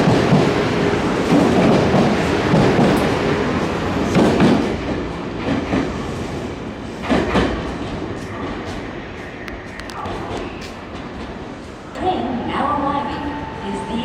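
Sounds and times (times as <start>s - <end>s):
wheels clacking over rail joints: 0.0s - 6.0s.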